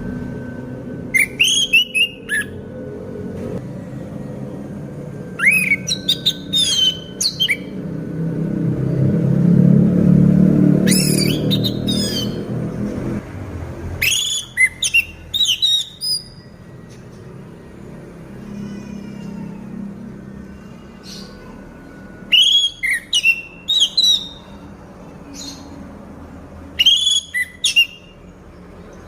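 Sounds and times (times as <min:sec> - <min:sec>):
thrush singing whistled phrases: 0:01.1 - 0:02.6, 0:05.4 - 0:07.7, 0:10.8 - 0:12.5, 0:14.0 - 0:16.5, 0:22.2 - 0:24.6, 0:26.8 - 0:28.1.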